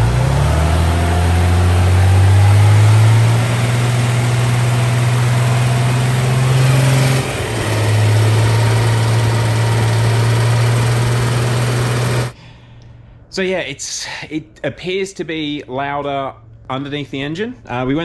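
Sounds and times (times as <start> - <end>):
car engine droning: 0.0 - 12.4.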